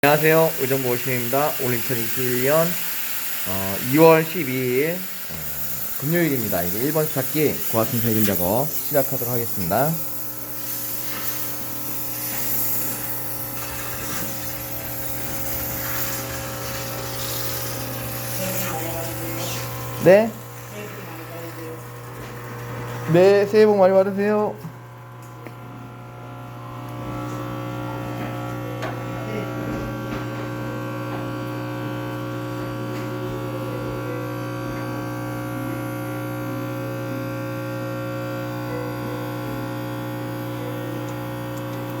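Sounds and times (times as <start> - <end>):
steam cleaner spraying hiss: 0.0 - 22.5
machine hum: 0.0 - 36.0.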